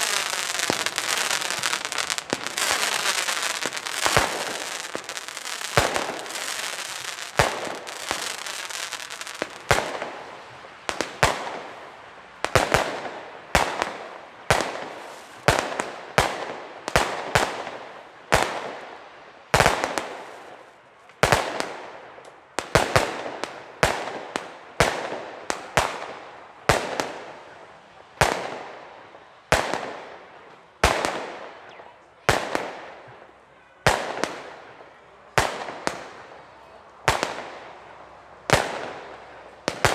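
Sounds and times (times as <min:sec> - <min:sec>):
firework bangs: 0:00.0 - 0:10.3
firework crackling: 0:00.0 - 0:11.7.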